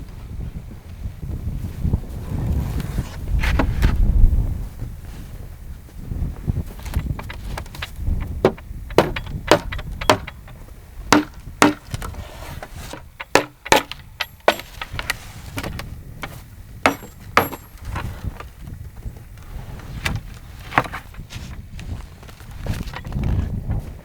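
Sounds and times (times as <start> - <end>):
wood knocking and snapping: 6.9 - 18.5, 20.0 - 21.6.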